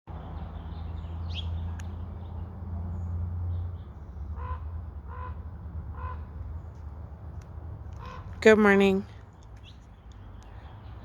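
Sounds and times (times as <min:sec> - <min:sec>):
small birds chirping: 0:00.2 - 0:04.6, 0:08.0 - 0:11.0
large bird honking call: 0:04.4 - 0:06.3.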